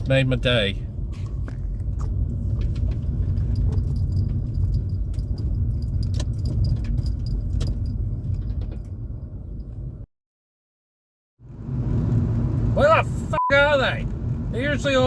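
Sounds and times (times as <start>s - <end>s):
car engine and road rumble: 0.0s - 10.1s, 11.4s - 15.0s
light jangling rattles: 1.9s - 9.9s.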